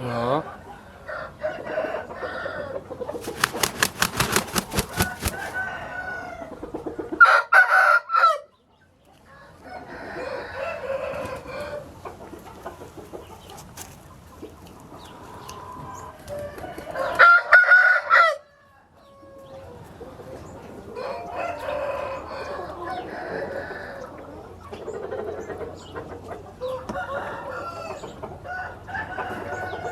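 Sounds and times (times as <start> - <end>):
roosters crowing: 1.1 - 6.6.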